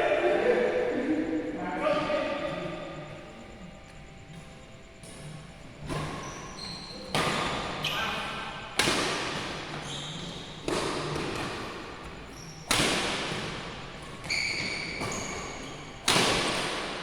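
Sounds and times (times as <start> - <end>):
badminton racket hitting shuttlecock: 8.8 - 17.0.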